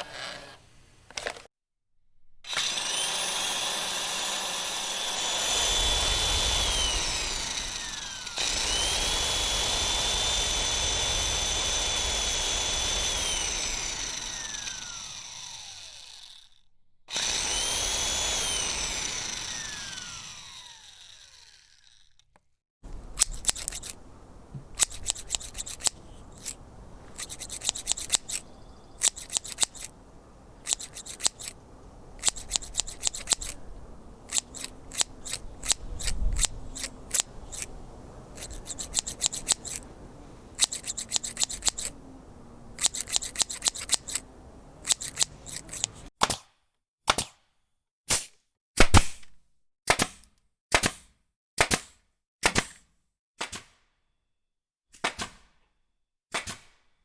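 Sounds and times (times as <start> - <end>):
grass clippers snipping: 2.5 - 14.8, 22.9 - 46.1
electric mixer motor whining: 2.5 - 16.5, 17.1 - 22.0, 22.9 - 46.1.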